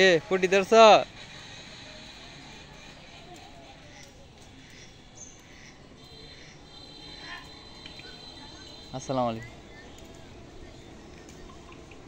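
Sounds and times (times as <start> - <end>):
faint outdoor background noise: 0.0 - 12.0
high bird chirps: 4.6 - 12.0.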